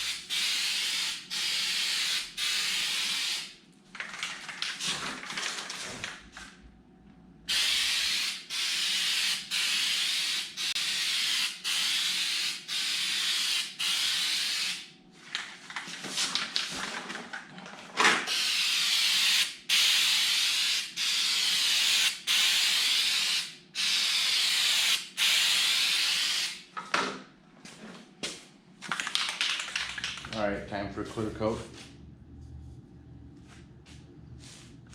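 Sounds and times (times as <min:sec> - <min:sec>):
aerosol spray can hissing: 0:07.5 - 0:14.8, 0:18.3 - 0:26.6.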